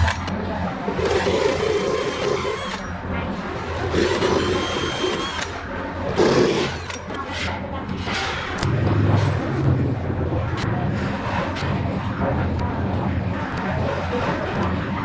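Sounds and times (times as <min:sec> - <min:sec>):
cutting or grinding noise: 0:03.9 - 0:07.3
power tool motor humming: 0:04.0 - 0:05.5, 0:06.2 - 0:07.1.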